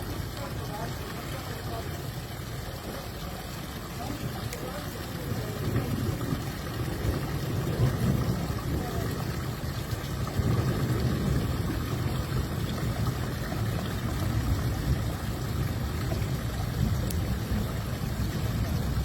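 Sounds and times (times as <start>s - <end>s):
steady low rumble: 5.2s - 19.0s.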